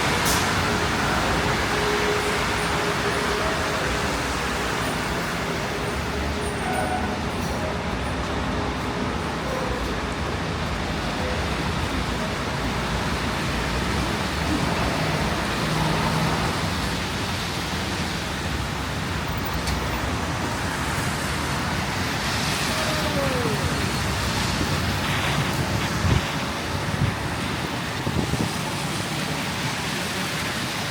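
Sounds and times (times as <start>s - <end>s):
city road traffic roar: 0.0s - 30.9s.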